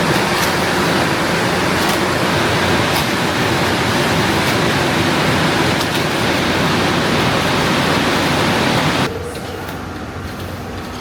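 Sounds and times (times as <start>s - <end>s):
factory machinery running: 0.0s - 11.0s.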